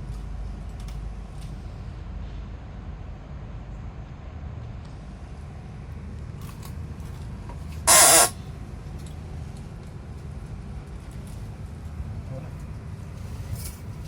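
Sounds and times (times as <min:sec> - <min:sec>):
short loud hiss: 0:07.9 - 0:08.4.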